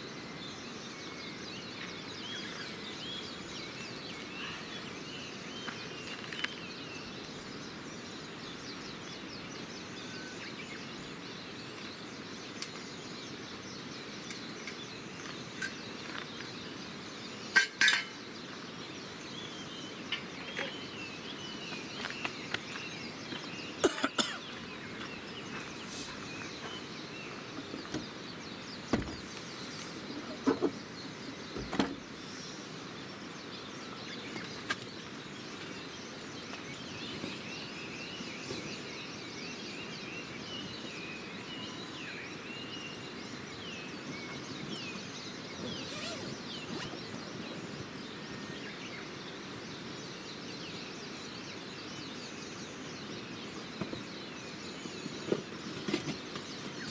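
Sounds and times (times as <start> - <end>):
small birds chirping: 0.0 - 56.9
steady rushing hiss: 25.2 - 40.8.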